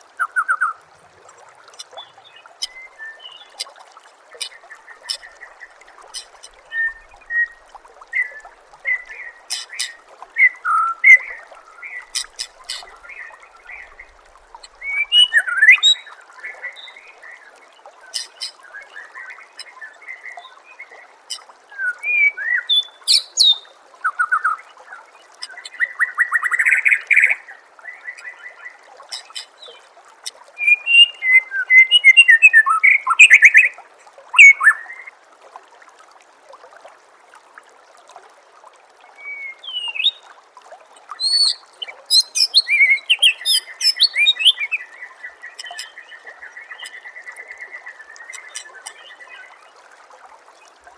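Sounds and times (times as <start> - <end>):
bird singing whistles and trills: 14.8 - 16.1, 21.3 - 24.5, 30.6 - 33.7, 34.4 - 35.1, 41.2 - 46.1.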